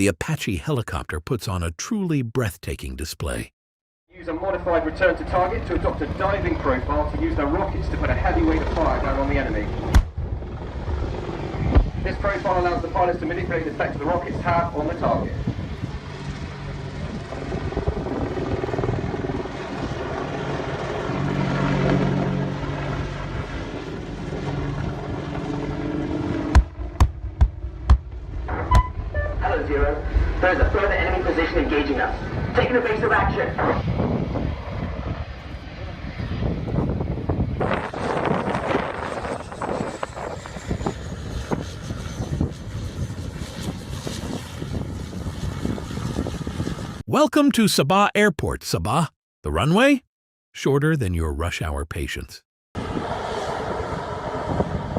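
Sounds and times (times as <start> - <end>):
helicopter rotor and engine roar: 4.1 - 47.0, 52.8 - 54.9
wind buffeting microphone: 14.2 - 20.1, 32.1 - 47.0, 52.8 - 54.9.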